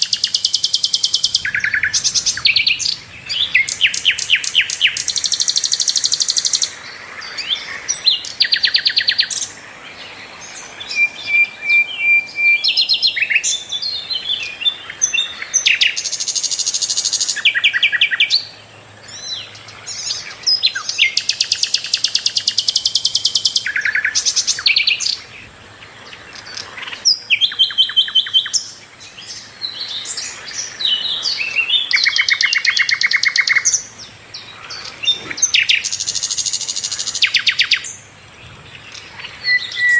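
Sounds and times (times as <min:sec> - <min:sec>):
bird chirps: 0:00.0 - 0:39.9
songbird singing rattling trills: 0:00.0 - 0:39.9
bird whistle: 0:10.9 - 0:14.5, 0:39.4 - 0:39.9.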